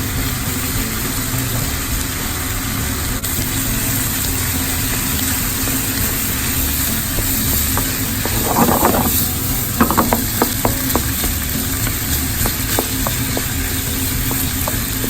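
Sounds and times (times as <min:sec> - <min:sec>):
cooking hiss: 0:00.0 - 0:15.0
utensils tapping cookware: 0:03.3 - 0:15.0.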